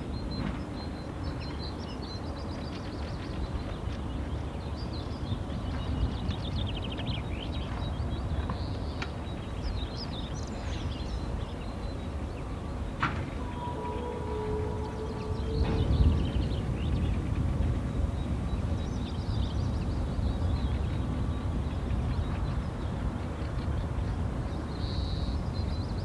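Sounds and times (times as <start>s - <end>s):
songbirds chirping and trilling: 0.0s - 26.0s
steady low rumble: 12.6s - 24.6s.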